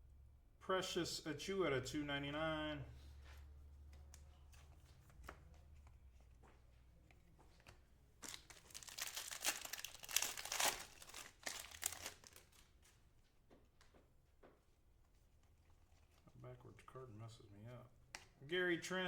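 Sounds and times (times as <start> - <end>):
foil wrapper tearing and crinkling: 8.2 - 12.7.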